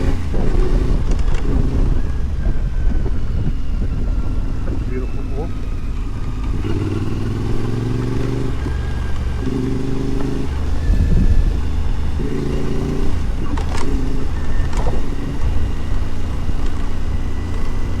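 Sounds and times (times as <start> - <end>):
motorcycle engine running: 0.0 - 18.0
wind and road noise: 0.0 - 18.0
sharp clicks: 12.0 - 17.8.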